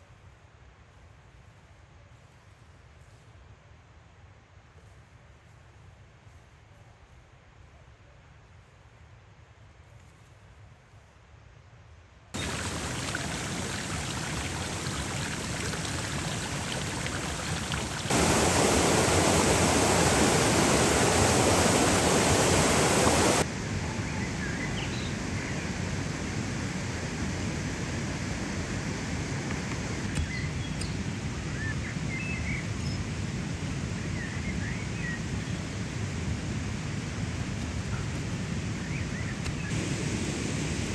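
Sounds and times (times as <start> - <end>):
outdoor rushing noise: 12.4 - 23.6.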